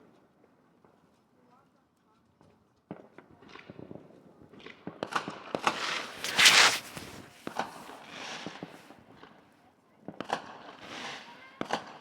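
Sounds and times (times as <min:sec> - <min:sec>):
fireworks popping and crackling: 0:05.6 - 0:08.0.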